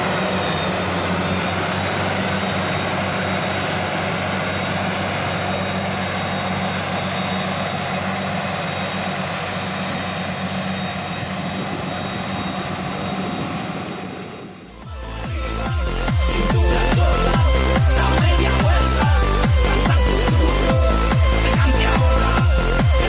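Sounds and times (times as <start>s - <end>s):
chopper cutting crop: 0.0s - 23.0s
harvester engine drone: 0.0s - 23.0s.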